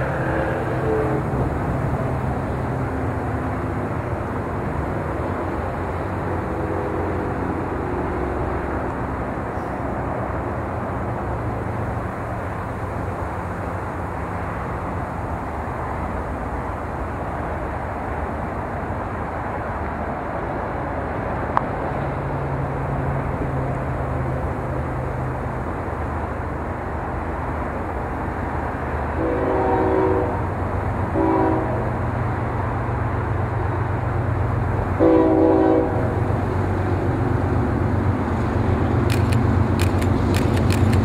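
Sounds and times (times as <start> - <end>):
diesel locomotive engine drone: 0.0 - 41.0
freight cars rumbling on rails: 0.0 - 41.0
sharp click: 39.1 - 41.0.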